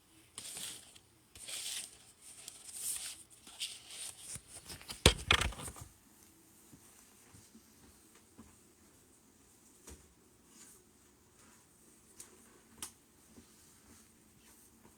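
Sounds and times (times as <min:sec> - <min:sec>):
rustling and scraping: 0:00.4 - 0:05.9.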